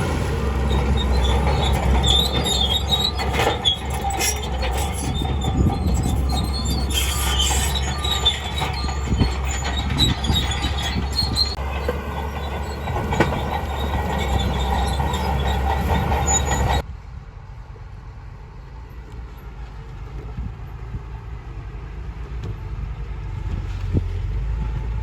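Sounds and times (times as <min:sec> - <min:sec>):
bulldozer tracks squealing and clanking: 0:00.0 - 0:16.9
diesel engine rumble: 0:00.0 - 0:25.0.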